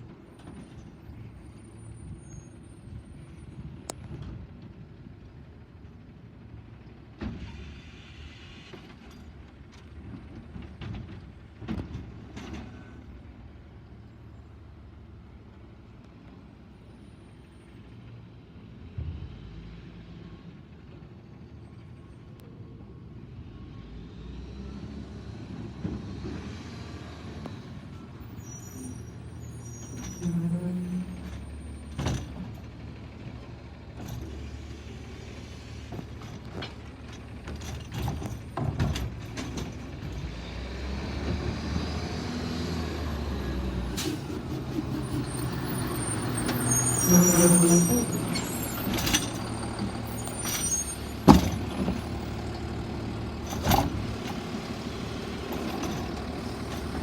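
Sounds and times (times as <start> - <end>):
garbage truck engine rumbling: 0.0 - 57.0
air brake hisses: 7.4 - 8.9.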